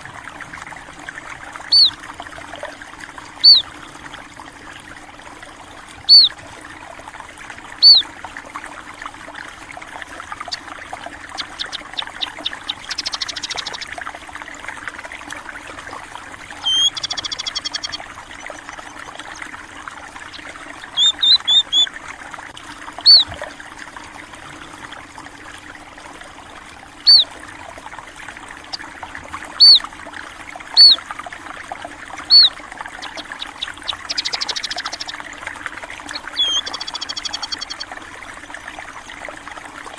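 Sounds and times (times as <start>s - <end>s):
trickle of running water: 0.0s - 39.9s
bird buzzy trills: 0.4s - 4.6s, 6.0s - 6.4s, 7.6s - 8.2s, 9.5s - 14.9s, 15.5s - 22.0s, 23.0s - 23.4s, 27.0s - 27.6s, 28.3s - 38.1s
small birds chirping: 1.6s - 2.1s, 3.3s - 3.8s, 6.0s - 6.4s, 7.8s - 8.1s, 10.3s - 14.0s, 16.5s - 19.1s, 20.2s - 21.9s, 23.0s - 23.4s, 27.0s - 27.3s, 29.6s - 29.9s, 30.7s - 31.0s, 32.2s - 35.4s, 36.0s - 38.0s.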